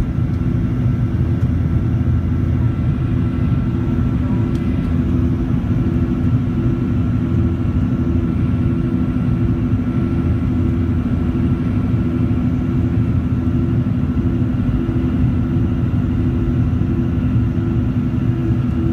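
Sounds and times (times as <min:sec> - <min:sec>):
jet engines at takeoff: 0:00.0 - 0:18.9.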